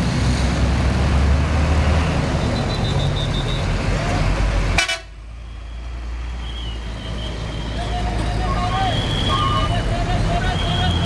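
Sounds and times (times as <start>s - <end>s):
heavy truck passing: 0.0s - 11.0s
traffic: 0.0s - 11.0s
horn toot: 4.8s - 5.2s.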